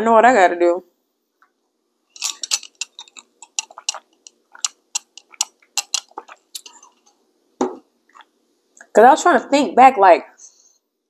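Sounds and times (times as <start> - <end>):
chewing with clicks and smacks: 2.3 - 7.0, 8.1 - 8.3.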